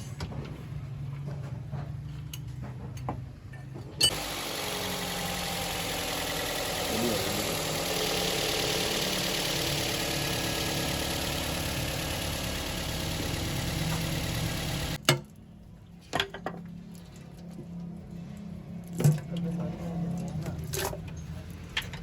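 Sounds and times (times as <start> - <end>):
car engine running: 4.1 - 15.0.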